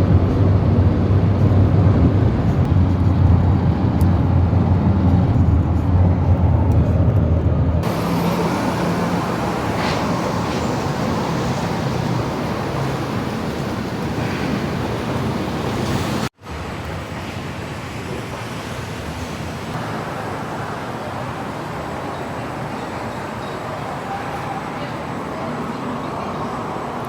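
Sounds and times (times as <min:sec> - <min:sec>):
road vehicle rumble: 0:00.0 - 0:27.0
bright rushing noise: 0:07.8 - 0:15.0.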